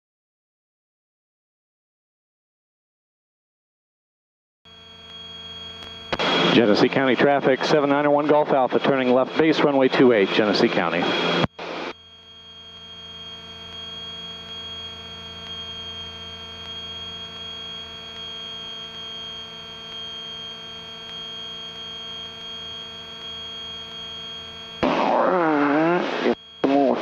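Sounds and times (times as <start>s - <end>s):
high whine: 4.7s - 27.0s
aircraft engines droning: 6.1s - 11.5s.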